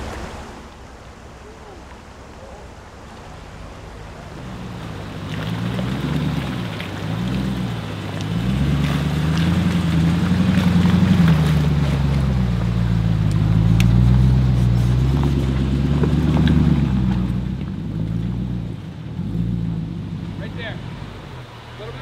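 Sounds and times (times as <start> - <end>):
off-road vehicle engine revving: 2.9 - 22.0.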